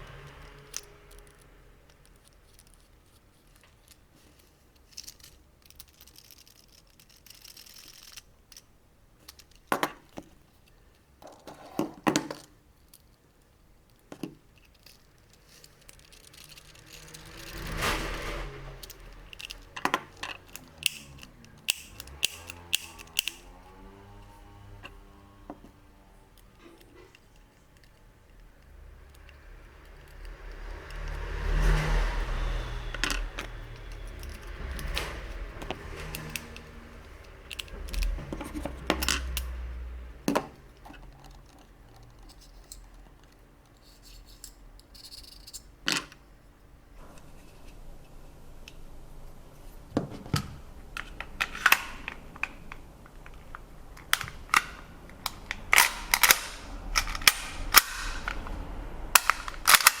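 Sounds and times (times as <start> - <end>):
airsoft pistol mechanical clicks: 20.5 - 23.5.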